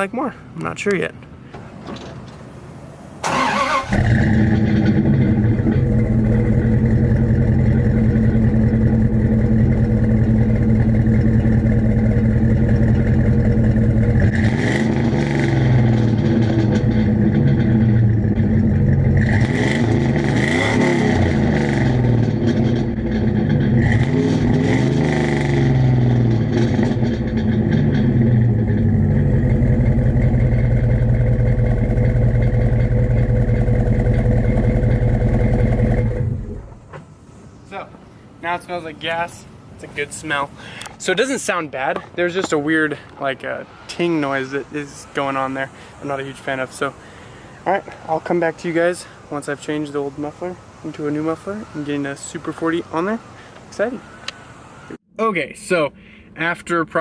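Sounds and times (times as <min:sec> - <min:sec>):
engine revving: 0:03.2 - 0:36.8
vee eight engine starting and idling: 0:03.2 - 0:36.9.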